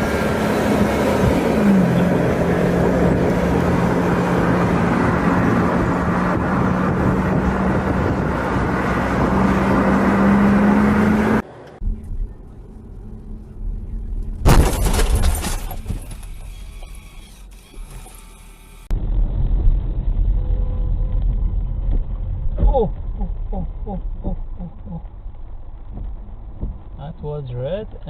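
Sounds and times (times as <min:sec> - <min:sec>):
car engine and road noise: 0:00.0 - 0:28.0
loud bang: 0:14.4 - 0:15.8.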